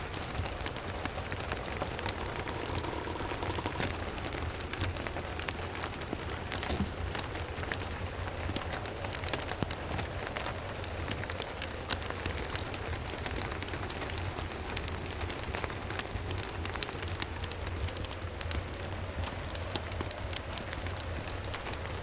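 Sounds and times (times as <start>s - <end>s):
steady rain: 0.0s - 22.0s
wood fire crackling: 0.0s - 22.0s
low steady rumble: 1.6s - 7.2s.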